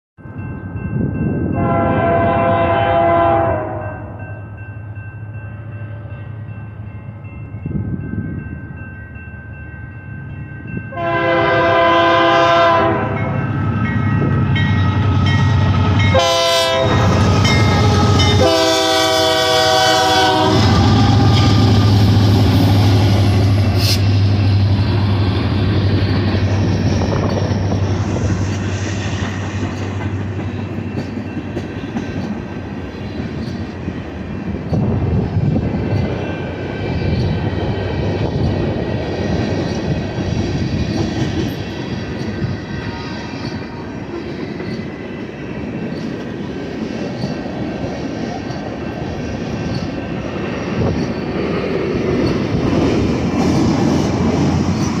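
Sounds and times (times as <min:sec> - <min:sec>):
train rolling past: 0:00.2 - 0:55.0
locomotive horn blasts: 0:01.6 - 0:04.2, 0:10.9 - 0:13.4, 0:15.8 - 0:21.9.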